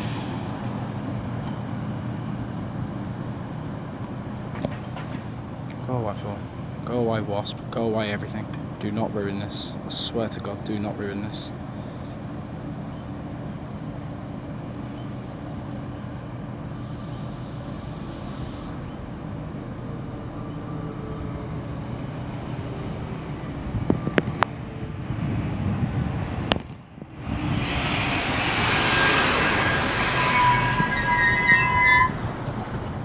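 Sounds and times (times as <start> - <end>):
locomotive engine idling: 0.0 - 16.8, 26.0 - 33.0
rushing train noise: 0.0 - 33.0.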